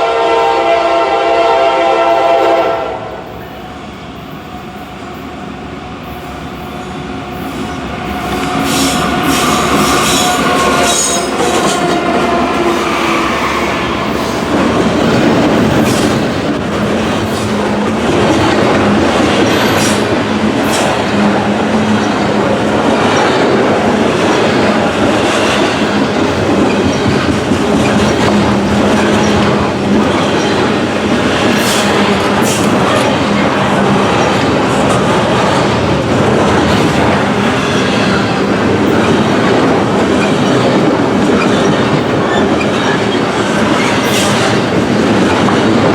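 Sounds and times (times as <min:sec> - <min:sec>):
diesel locomotives passing: 0:00.0 - 0:45.9
wheels clicking over rail joints: 0:14.3 - 0:33.4.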